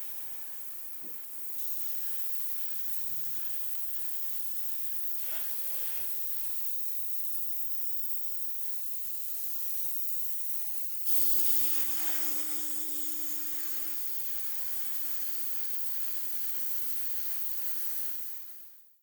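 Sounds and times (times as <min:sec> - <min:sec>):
small motor humming: 0:11.1 - 0:14.0.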